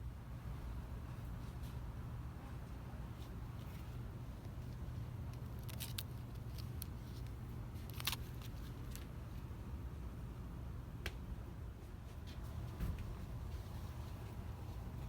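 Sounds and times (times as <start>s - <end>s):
light clicks and rattles: 4.4s - 9.1s.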